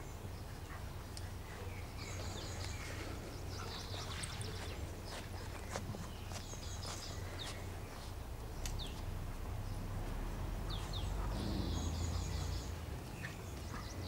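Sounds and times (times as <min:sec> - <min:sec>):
bird chirps: 0:10.6 - 0:14.0.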